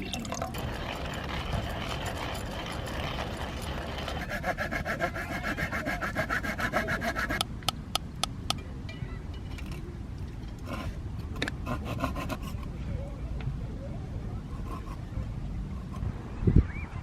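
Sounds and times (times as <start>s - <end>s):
saw cutting wood: 0.6s - 7.4s, 11.5s - 12.6s.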